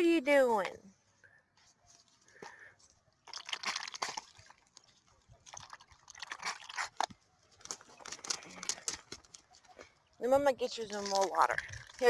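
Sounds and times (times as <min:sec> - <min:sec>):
goose splashing in water bowl: 0:03.2 - 0:12.0.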